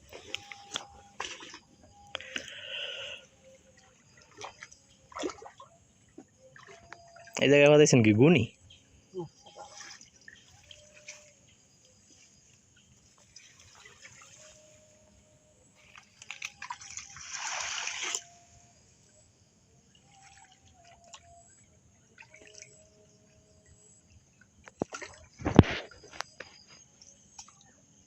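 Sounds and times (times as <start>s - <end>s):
water splashing and pouring: 0.0s - 2.6s, 4.1s - 5.7s, 9.4s - 11.3s, 13.1s - 14.9s, 15.8s - 18.5s
water dripping and trickling: 3.4s - 12.0s, 12.8s - 15.1s, 15.8s - 18.4s.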